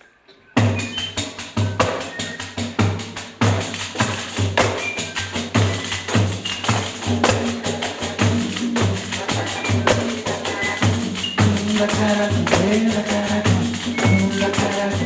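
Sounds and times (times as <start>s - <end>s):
frame drum jingles rattling: 0.6s - 15.0s.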